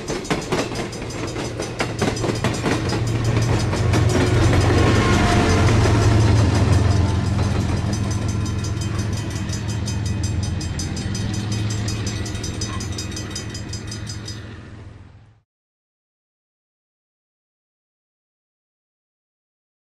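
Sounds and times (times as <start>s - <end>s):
wheels clicking over rail joints: 0.0s - 14.6s
train rumbling past: 0.0s - 15.4s.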